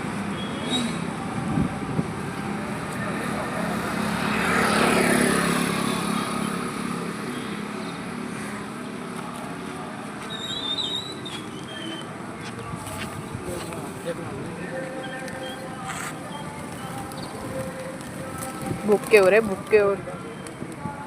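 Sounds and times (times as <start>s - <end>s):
street traffic: 0.0s - 21.0s
vehicle passing: 0.6s - 10.3s, 11.0s - 21.0s.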